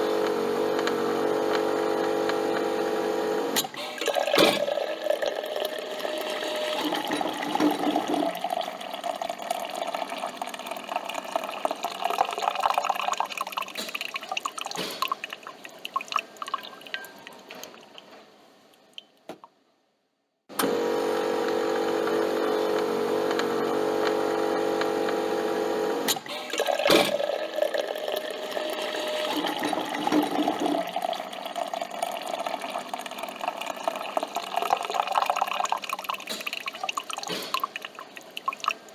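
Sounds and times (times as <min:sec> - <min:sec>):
coffee machine humming: 0:00.0 - 0:13.5, 0:20.5 - 0:36.2
coffee streaming and dripping: 0:00.0 - 0:19.4, 0:20.6 - 0:38.9.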